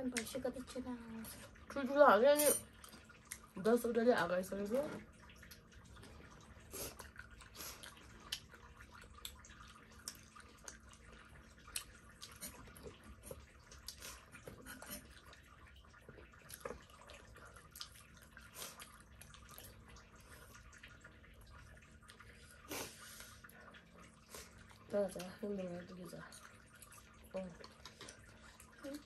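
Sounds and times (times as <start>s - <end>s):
people chewing with wet mouth sounds: 0.0s - 1.9s, 2.5s - 29.0s.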